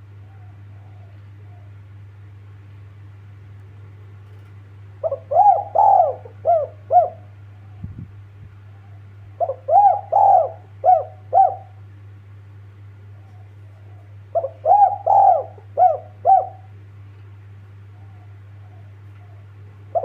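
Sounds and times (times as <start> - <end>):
dove cooing: 0.0 - 2.0, 5.0 - 7.9, 8.7 - 11.9, 13.1 - 16.8, 17.8 - 20.0
steady low hum: 0.0 - 20.0.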